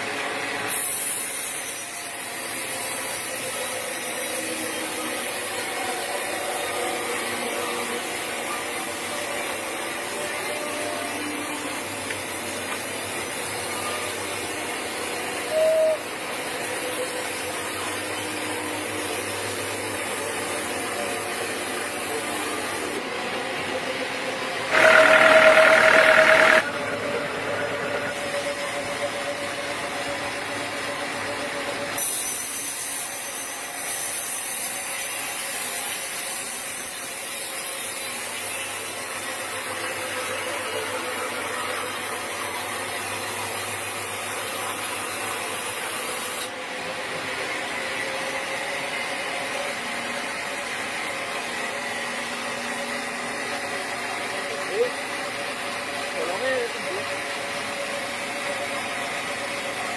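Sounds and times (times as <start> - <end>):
sawmill machinery hiss and hum: 0.0 - 59.9
high-pitched saw whine: 0.7 - 23.0, 23.9 - 35.3.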